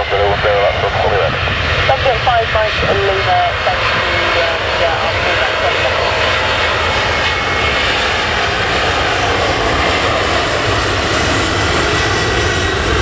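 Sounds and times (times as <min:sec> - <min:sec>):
wind rumble on microphone: 0:00.0 - 0:05.5
airliner engines running: 0:00.0 - 0:13.0.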